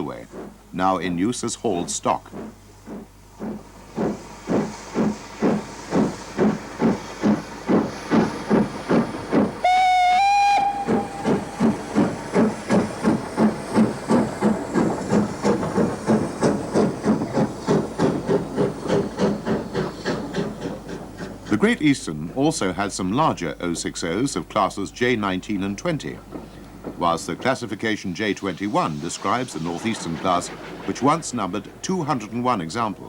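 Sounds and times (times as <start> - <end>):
steam locomotive chuffing: 0.0 - 33.0
steam locomotive whistle: 9.6 - 12.2.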